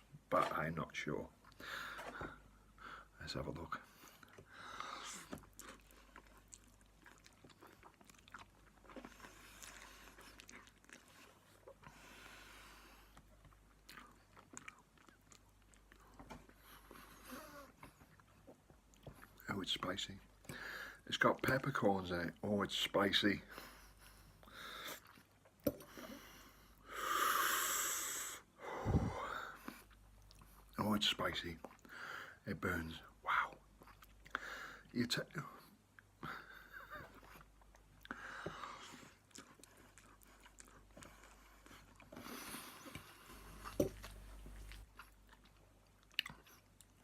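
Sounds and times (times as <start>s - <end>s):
soft chewing clicks: 4.0s - 12.1s, 13.0s - 19.4s, 29.6s - 30.7s, 35.9s - 47.0s
hissing breaths: 26.0s - 29.6s.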